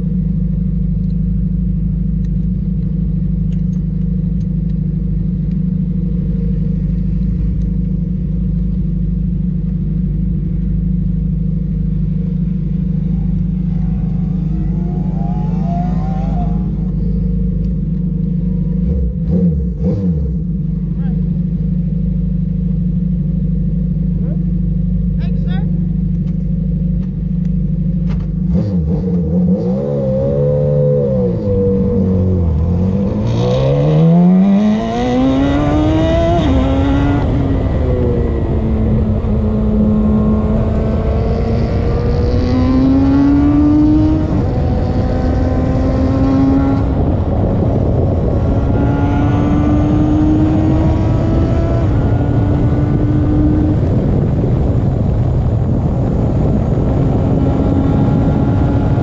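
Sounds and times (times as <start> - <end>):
steady rush of noise: 10.9 - 19.0, 31.8 - 59.0
race car engine accelerating: 11.6 - 21.4, 28.0 - 59.0.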